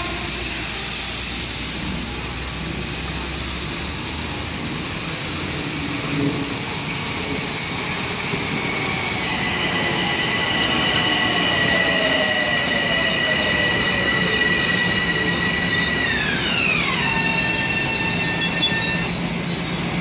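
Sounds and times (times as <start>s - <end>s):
train cars rumbling past: 0.0s - 20.0s
high squeal: 5.2s - 20.0s.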